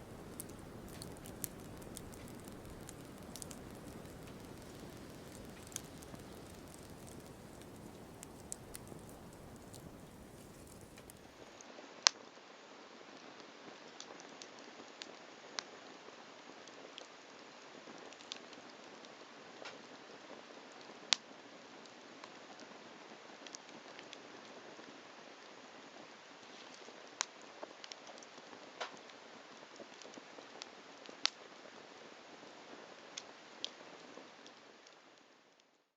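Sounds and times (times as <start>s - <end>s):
sharp pops of fire: 0.0s - 11.5s
wood fire crackling: 0.0s - 11.6s.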